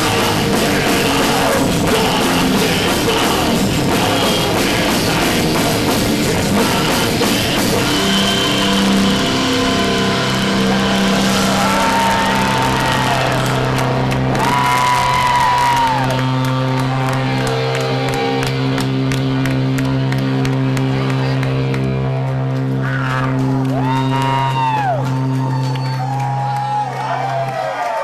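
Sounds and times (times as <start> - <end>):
distorted metal guitar chord: 0.0 - 25.0
crowd whooping and shouting: 7.8 - 20.7, 22.7 - 28.0.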